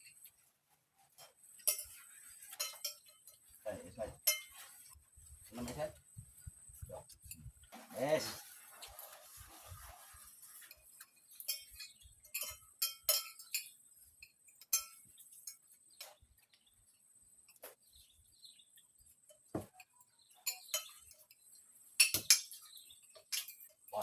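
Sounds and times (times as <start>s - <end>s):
tableware clinking: 1.1s - 3.4s, 4.2s - 4.9s, 11.0s - 16.2s, 19.3s - 21.4s, 22.0s - 24.0s.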